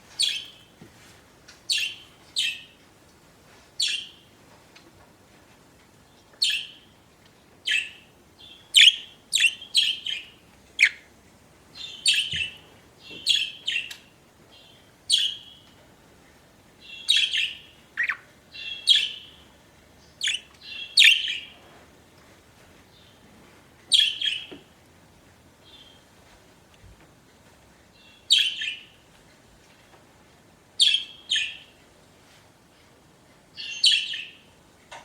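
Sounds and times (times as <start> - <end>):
budgerigars chirping: 0.2 - 0.6, 1.7 - 2.7, 6.4 - 6.8, 7.7 - 11.0, 11.8 - 14.0, 14.6 - 15.6, 16.8 - 19.4, 20.2 - 21.6, 23.9 - 24.5.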